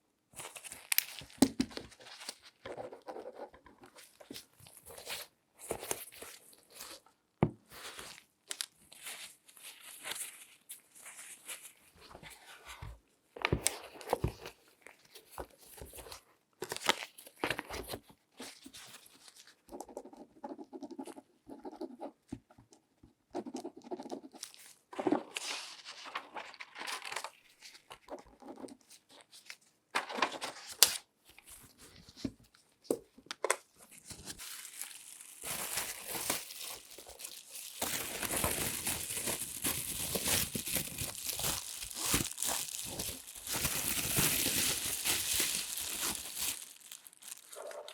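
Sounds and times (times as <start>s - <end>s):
gloves crinkling: 0.4s - 2.6s, 7.8s - 12.3s, 33.8s - 47.9s.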